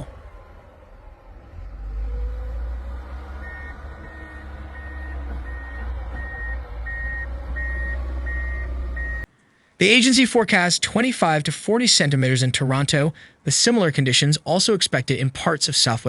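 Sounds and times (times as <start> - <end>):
diesel engine rumbling: 0.0 - 16.0
reversing alarm beeping: 1.5 - 9.3.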